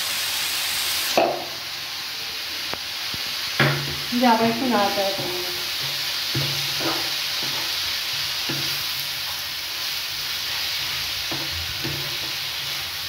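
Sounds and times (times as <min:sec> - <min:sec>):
food sizzling in frying pan: 0:00.0 - 0:13.0
spatula strokes against pan: 0:05.1 - 0:13.0.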